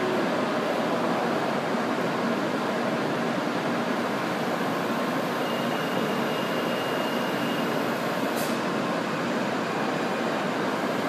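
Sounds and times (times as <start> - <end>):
brief high hiss: 8.3 - 8.7.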